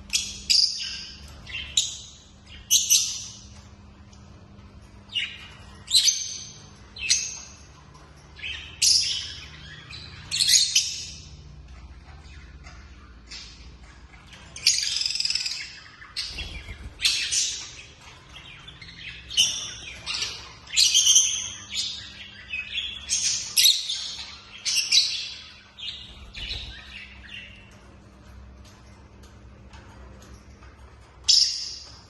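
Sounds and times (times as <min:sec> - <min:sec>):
lovebirds chirping shrilly: 0:13.3 - 0:27.6.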